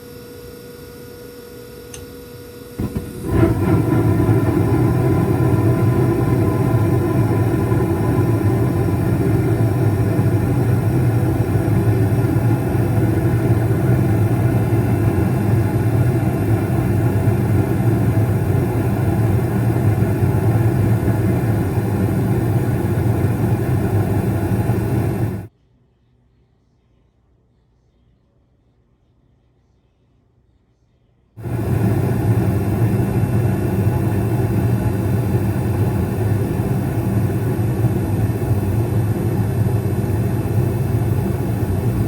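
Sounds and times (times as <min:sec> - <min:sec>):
gas furnace running: 0:02.7 - 0:25.5, 0:31.4 - 0:42.0.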